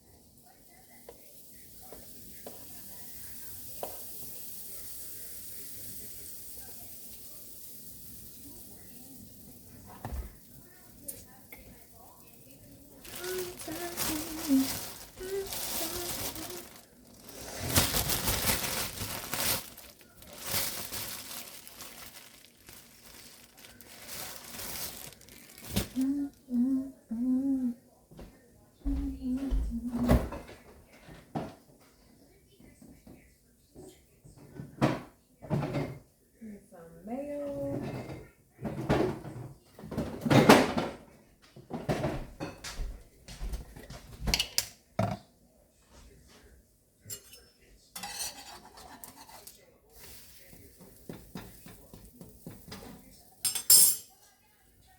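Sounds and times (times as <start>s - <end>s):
person speaking: 12.9s - 27.7s
packaging crinkling: 13.0s - 26.1s
dishes and utensils clattering: 34.4s - 36.0s, 37.5s - 45.3s, 47.0s - 50.1s, 50.7s - 54.4s.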